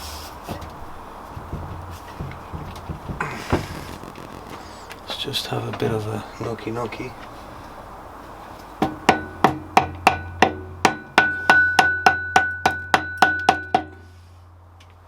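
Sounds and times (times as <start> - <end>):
hammer knocking on metal: 1.3 - 3.7, 8.8 - 14.0.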